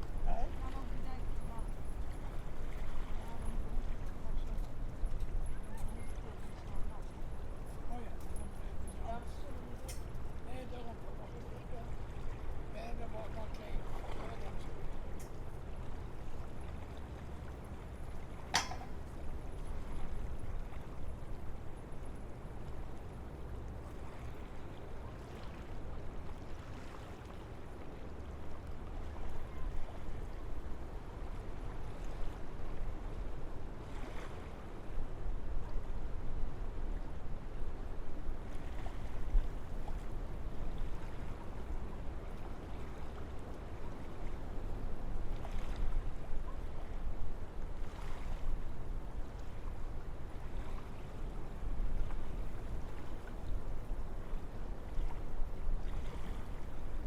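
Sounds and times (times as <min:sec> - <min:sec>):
wind through trees: 0:00.0 - 0:57.0.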